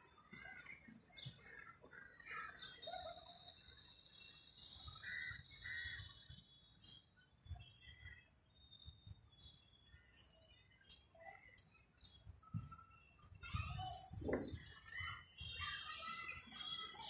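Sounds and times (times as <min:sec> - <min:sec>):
faint birdsong: 0:00.0 - 0:17.0.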